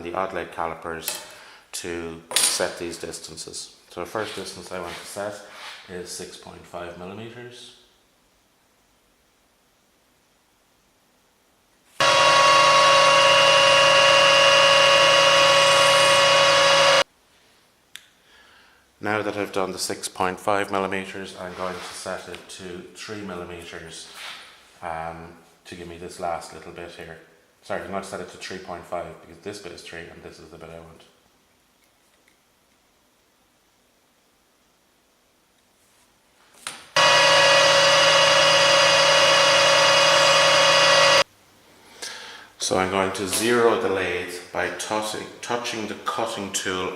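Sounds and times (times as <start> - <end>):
lathe whining: 12.0 - 17.0, 37.0 - 41.2.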